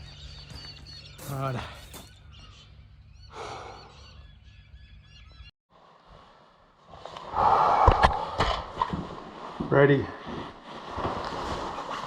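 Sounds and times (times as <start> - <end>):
birds chirping and calling: 0.0 - 5.5.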